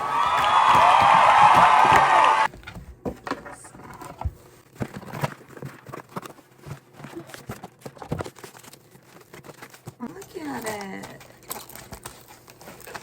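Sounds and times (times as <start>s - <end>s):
plastic clicks and rustles: 2.6s - 13.0s.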